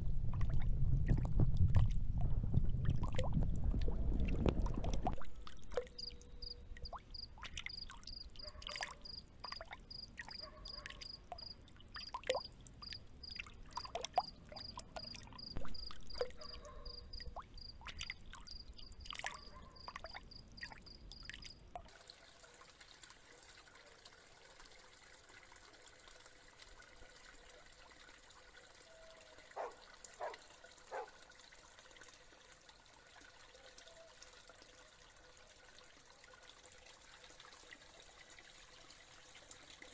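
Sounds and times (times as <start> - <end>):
trickling water: 0.0 - 39.9
water drips and splashes: 0.0 - 39.9
field cricket chirping: 5.8 - 21.5.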